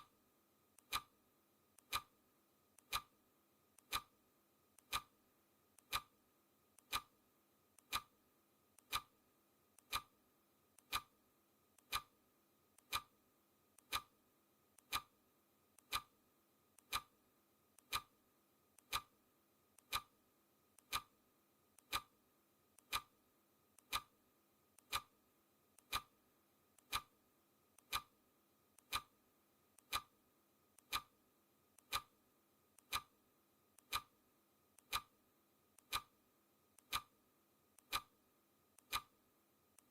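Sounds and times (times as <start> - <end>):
clock ticking: 0.8 - 1.1, 1.8 - 2.1, 2.8 - 3.1, 3.8 - 4.2, 4.8 - 5.2, 5.8 - 6.1, 6.8 - 7.1, 7.8 - 8.1, 8.8 - 9.2, 9.8 - 10.2, 10.8 - 11.1, 11.8 - 12.1, 12.8 - 13.1, 13.8 - 14.2, 14.8 - 15.1, 15.8 - 16.1, 16.8 - 17.1, 17.8 - 18.1, 18.8 - 19.1, 19.8 - 20.2, 20.8 - 21.2, 21.8 - 22.2, 22.8 - 23.2, 23.8 - 24.2, 24.8 - 25.2, 25.8 - 26.2, 26.8 - 27.1, 27.8 - 28.2, 28.8 - 29.2, 29.8 - 30.2, 30.8 - 31.1, 31.8 - 32.2, 32.8 - 33.2, 33.8 - 34.2, 34.8 - 35.2, 35.8 - 36.2, 36.8 - 37.2, 37.8 - 38.2, 38.8 - 39.2.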